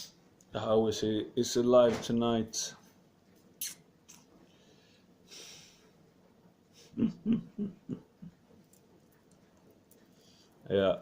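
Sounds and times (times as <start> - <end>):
man breathing: 4.5 - 6.0
short sniff: 5.3 - 5.9.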